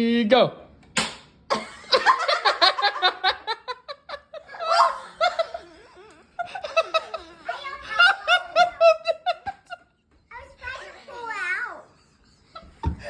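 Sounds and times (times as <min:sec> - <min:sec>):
children laughing: 0:01.5 - 0:13.0
voiced cry: 0:04.5 - 0:06.2.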